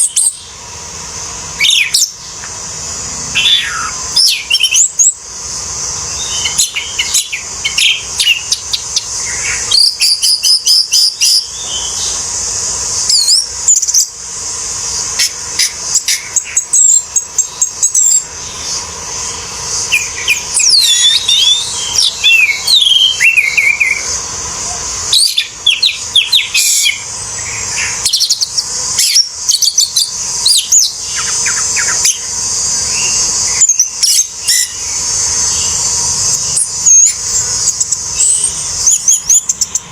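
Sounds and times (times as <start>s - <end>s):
thrush singing: 0.0s - 39.9s.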